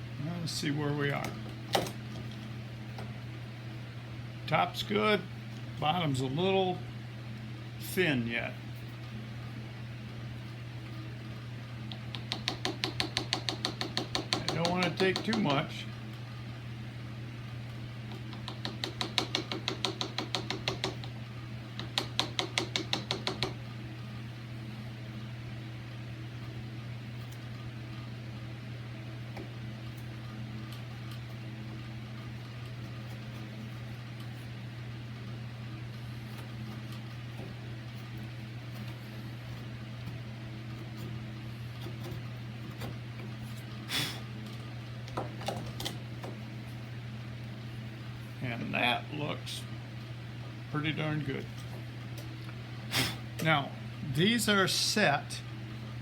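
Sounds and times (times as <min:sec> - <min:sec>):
steady low hum: 0:00.0 - 0:56.0
hammer tapping a chisel: 0:11.9 - 0:15.6, 0:18.2 - 0:21.2, 0:21.8 - 0:23.6.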